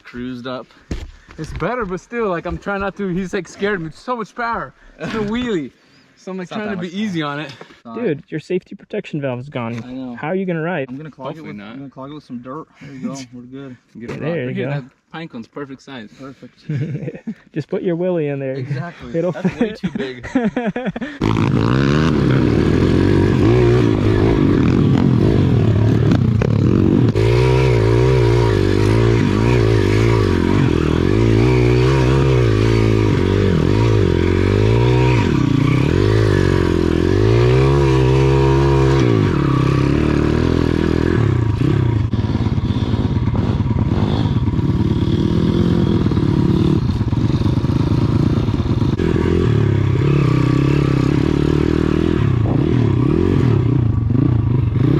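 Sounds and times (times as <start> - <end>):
small motorcycle engine revving: 21.2 - 54.9.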